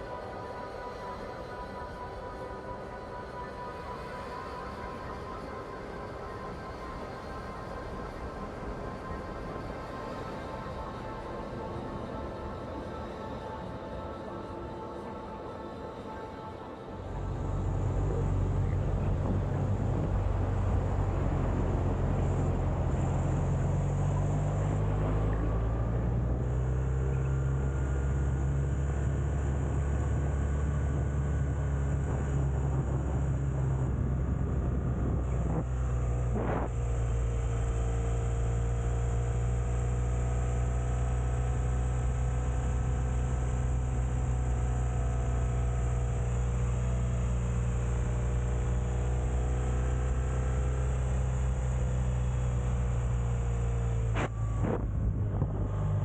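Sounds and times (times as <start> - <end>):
wind and road noise: 17.0 - 56.0
motorcycle engine running: 17.1 - 56.0.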